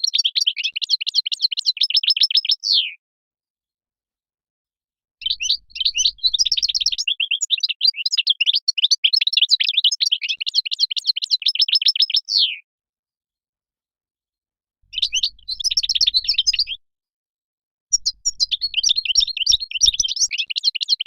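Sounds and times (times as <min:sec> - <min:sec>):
finch twittering song: 0:00.0 - 0:03.0, 0:05.2 - 0:12.6, 0:14.9 - 0:16.8, 0:17.9 - 0:21.0.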